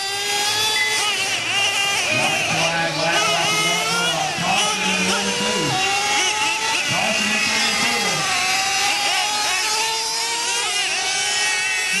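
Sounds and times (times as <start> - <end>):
small nitro engines revving: 0.0 - 12.0.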